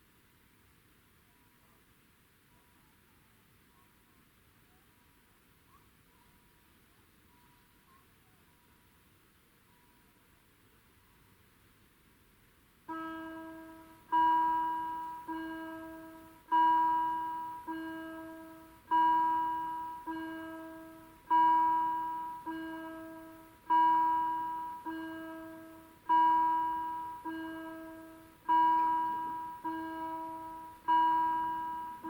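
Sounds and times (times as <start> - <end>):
level crossing bell ringing: 12.9 - 32.0.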